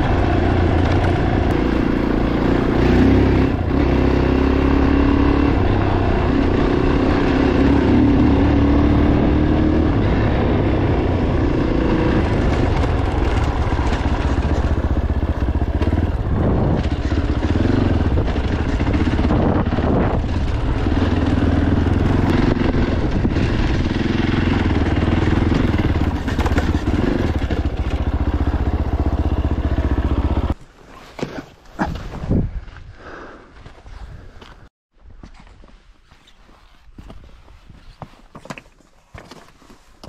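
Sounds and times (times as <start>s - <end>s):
motorcycle engine running: 0.0s - 30.6s.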